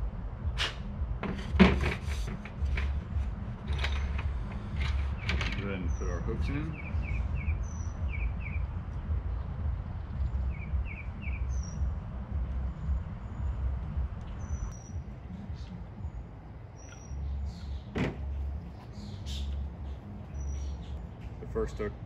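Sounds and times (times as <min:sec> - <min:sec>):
low rumble: 0:00.0 - 0:16.6
small birds chirping: 0:02.0 - 0:22.0.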